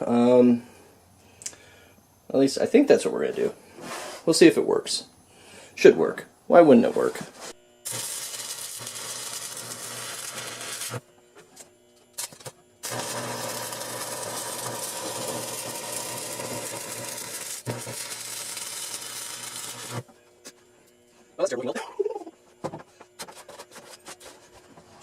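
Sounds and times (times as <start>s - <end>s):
welding arc crackling and sizzling: 7.8s - 11.0s, 11.6s - 20.1s.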